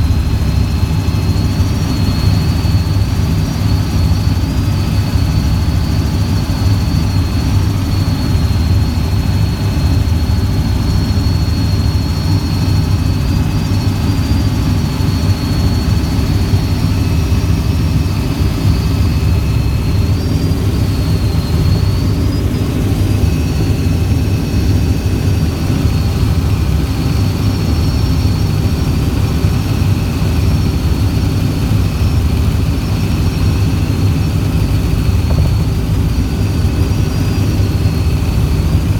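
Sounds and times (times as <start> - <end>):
helicopter engine and rotor drone: 0.0 - 38.9
high whine: 0.0 - 38.9.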